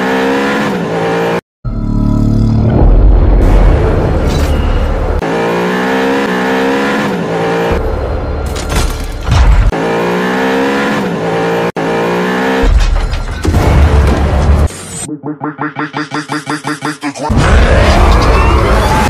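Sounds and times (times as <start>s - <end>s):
car engine revving: 4.9s - 8.5s, 9.6s - 12.7s.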